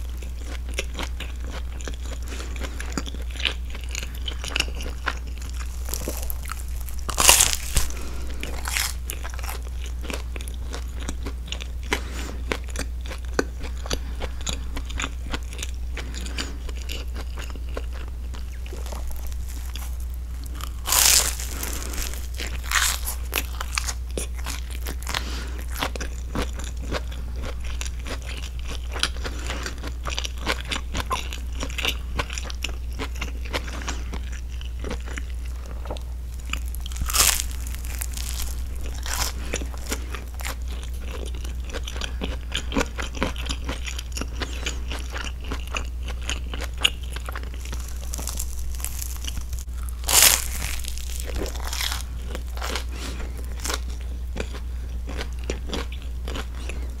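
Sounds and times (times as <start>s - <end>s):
chewing and crunching toast: 0.0s - 57.0s.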